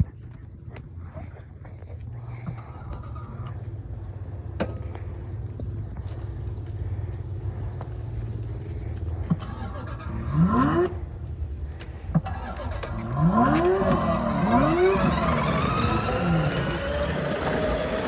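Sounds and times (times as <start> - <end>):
engine rev sound effect: 8.8 - 11.1, 12.3 - 18.0
electric motorbike drone: 8.9 - 11.0, 12.2 - 18.0.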